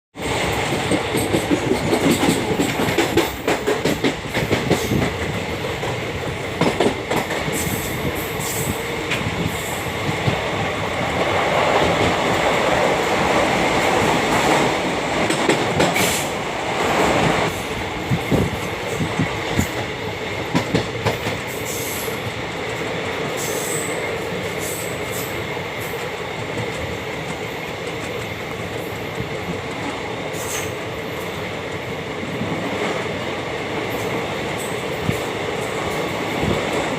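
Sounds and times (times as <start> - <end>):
train wheels rumbling on rails: 0.2 - 36.9
wheels clicking over rail joints: 0.3 - 10.5.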